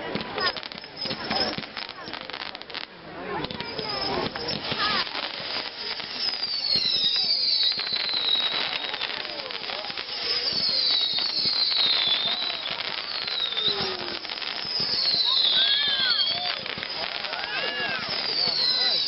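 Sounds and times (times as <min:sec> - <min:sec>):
fireworks crackling: 0:00.0 - 0:19.0
firework whistles falling in pitch: 0:00.4 - 0:19.0.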